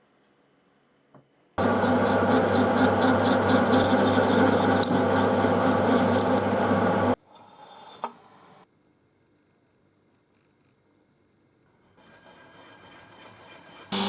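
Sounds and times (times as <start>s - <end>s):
power tool abrading metal: 1.6s - 7.2s, 13.8s - 14.0s.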